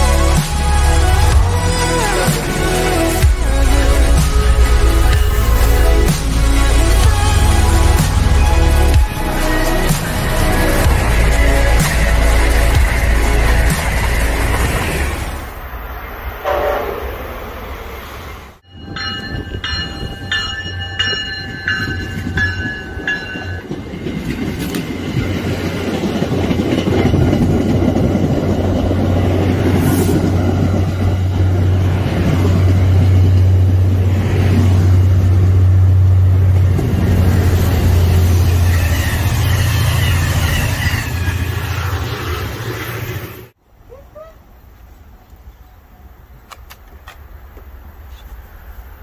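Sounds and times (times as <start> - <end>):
train passing with rumble: 0.0 - 43.7
train horn blasts: 16.4 - 17.2.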